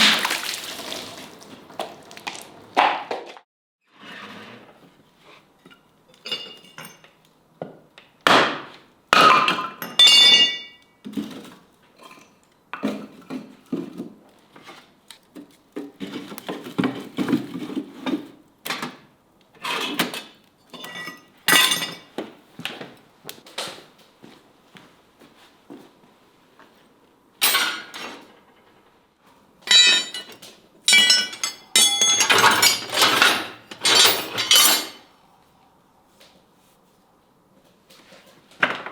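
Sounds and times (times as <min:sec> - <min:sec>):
steel clanking and clinking: 0:05.7 - 0:07.2, 0:09.4 - 0:10.8, 0:29.6 - 0:35.1.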